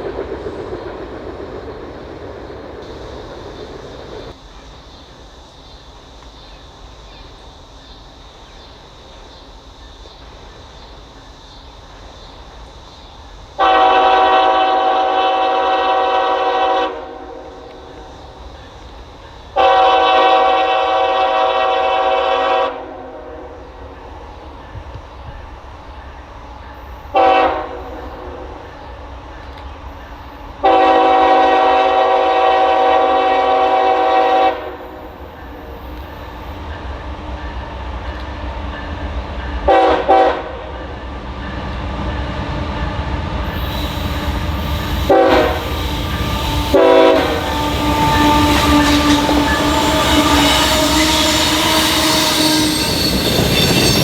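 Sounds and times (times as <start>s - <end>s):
train rumble: 0.0s - 54.0s
train horn blasts: 13.6s - 17.8s, 19.6s - 23.6s, 27.1s - 28.4s, 30.6s - 35.1s, 39.7s - 40.8s, 43.5s - 54.0s.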